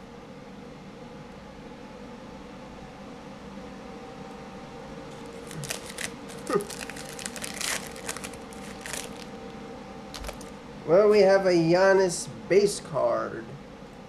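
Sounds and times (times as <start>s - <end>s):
steady low hum: 2.6s - 14.0s
plastic wrapper crinkling and tearing: 5.1s - 9.5s, 10.1s - 10.6s.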